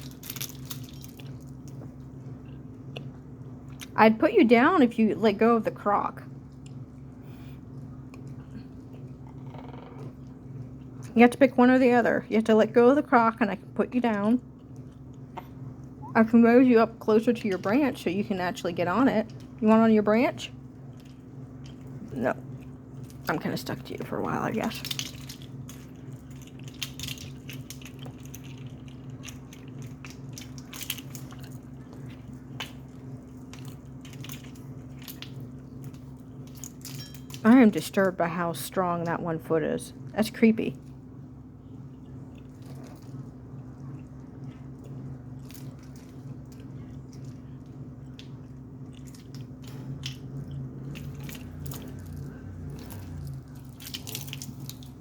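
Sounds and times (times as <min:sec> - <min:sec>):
low hum: 0:00.0 - 0:55.0
parrot chewing with beak: 0:41.9 - 0:55.0.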